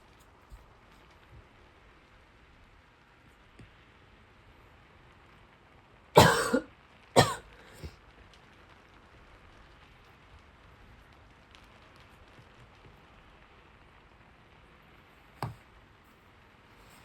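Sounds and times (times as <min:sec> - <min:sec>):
rain hissing: 0:00.0 - 0:17.0
person coughing: 0:06.2 - 0:07.9.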